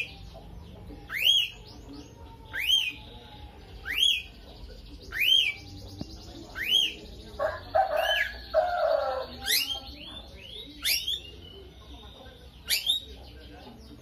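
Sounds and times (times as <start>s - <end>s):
lovebird chirping: 0.0s - 14.0s
harsh bird chattering: 3.8s - 14.0s.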